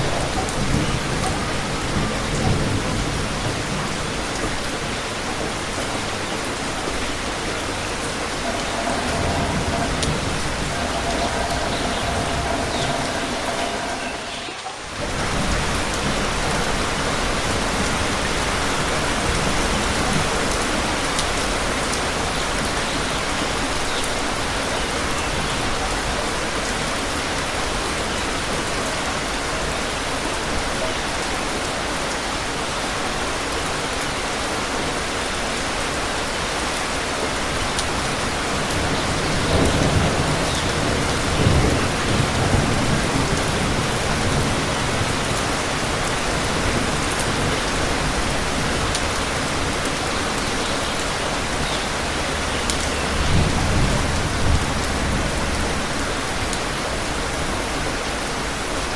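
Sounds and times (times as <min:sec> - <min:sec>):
low rumble of thunder: 0:00.0 - 0:06.2, 0:06.9 - 0:21.4, 0:37.9 - 0:57.2
steady rain falling: 0:00.0 - 0:58.9.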